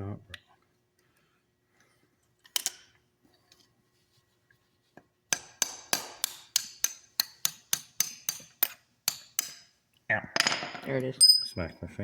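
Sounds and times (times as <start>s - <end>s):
hammer striking steel punch: 5.3s - 9.7s.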